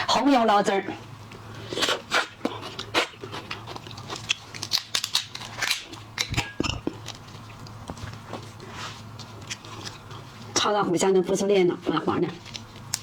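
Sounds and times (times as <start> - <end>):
shellfish shells cracking: 3.4 - 7.8, 12.5 - 13.0.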